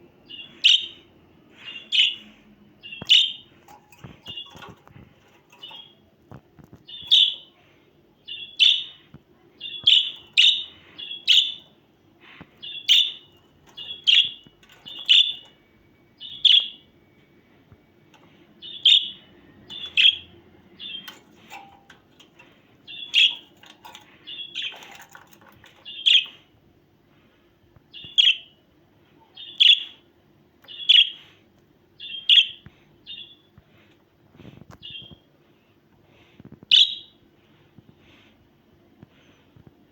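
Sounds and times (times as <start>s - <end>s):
budgerigar chirping: 9.6s - 11.7s.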